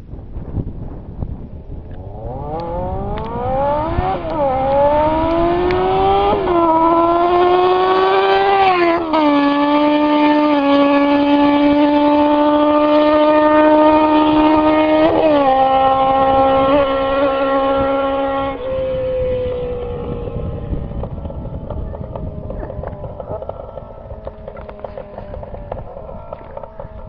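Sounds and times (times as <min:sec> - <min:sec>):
motorcycle engine accelerating hard: 0:01.5 - 0:27.0.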